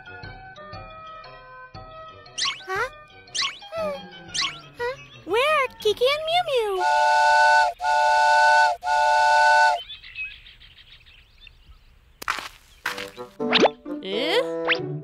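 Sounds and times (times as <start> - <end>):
cartoon train whistle blasts: 6.8 - 9.8.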